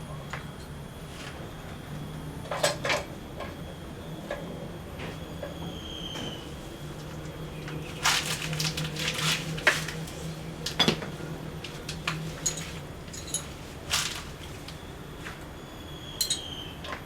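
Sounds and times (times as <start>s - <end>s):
steady low hum: 0.0s - 17.0s
metal tools clinking and scraping: 7.8s - 14.8s, 16.2s - 16.6s.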